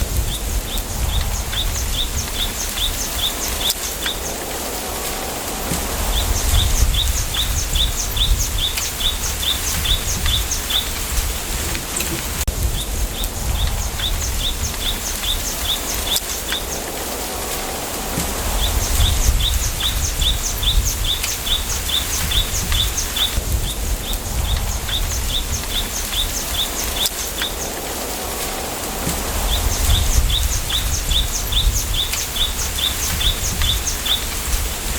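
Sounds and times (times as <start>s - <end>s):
wind rumble on microphone: 0.0s - 34.9s
wind rustling bamboo leaves: 0.0s - 34.9s
small bird chirping: 6.0s - 17.0s, 18.5s - 27.8s, 29.2s - 34.6s.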